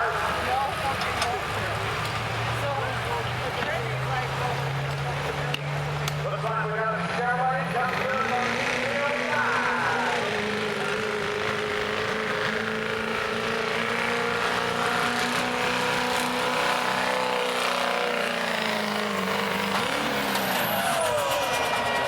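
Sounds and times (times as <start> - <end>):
diesel truck engine under load: 0.0 - 22.0.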